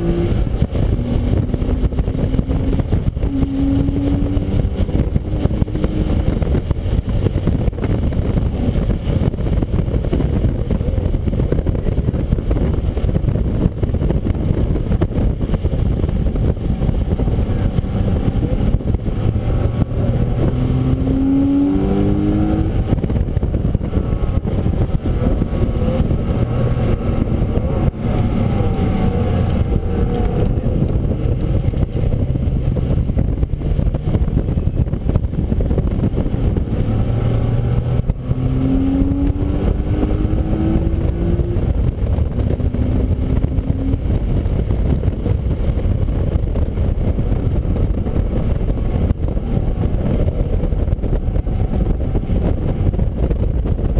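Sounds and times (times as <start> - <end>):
race car engine rumble: 0.0 - 53.9.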